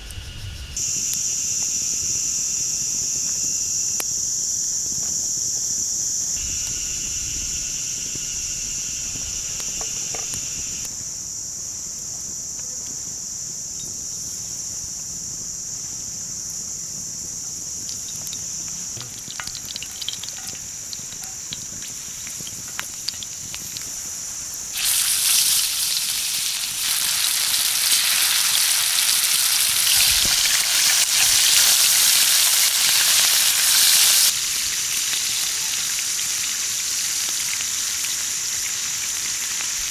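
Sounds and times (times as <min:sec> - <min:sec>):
insects chirring: 0:00.0 - 0:39.9
food sizzling in a pan: 0:06.3 - 0:11.0, 0:17.5 - 0:39.9.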